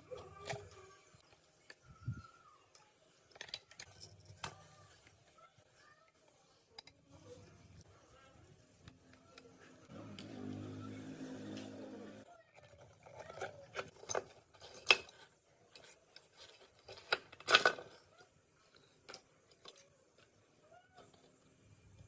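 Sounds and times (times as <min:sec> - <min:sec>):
small metal parts clicking: 0:00.0 - 0:05.2, 0:12.4 - 0:22.0.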